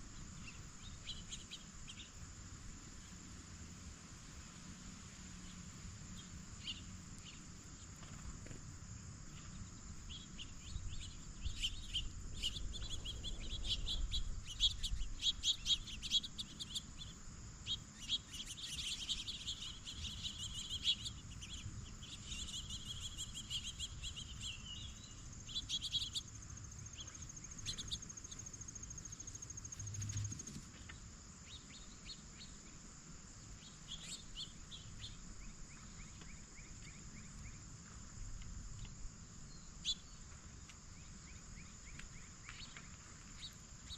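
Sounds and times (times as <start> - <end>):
insects buzzing: 0.0 - 43.9
pulsing insect trill: 5.4 - 37.7
birds chirping: 9.2 - 30.9.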